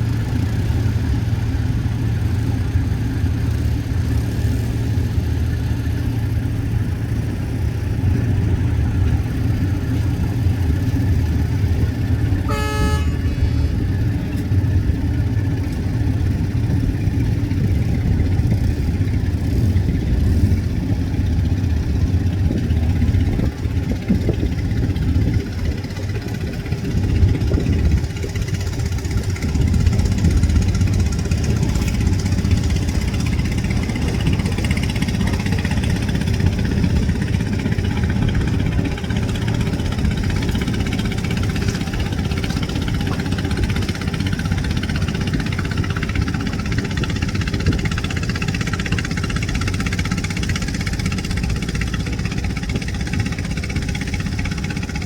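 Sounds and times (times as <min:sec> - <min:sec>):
boat engines droning: 0:00.0 - 0:55.0
boat horn blast: 0:11.6 - 0:14.8.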